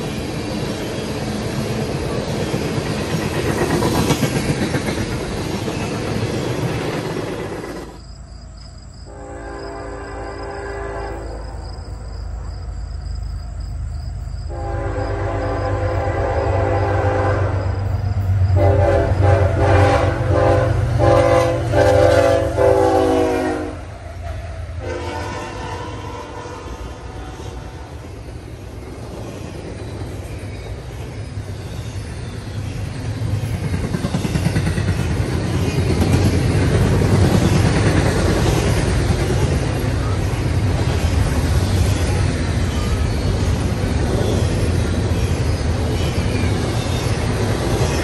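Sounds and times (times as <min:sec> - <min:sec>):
train cars rail rumble: 0:00.0 - 0:48.0
locomotive air horn blasts: 0:09.1 - 0:11.4, 0:14.5 - 0:17.8, 0:18.6 - 0:23.9, 0:24.8 - 0:28.0.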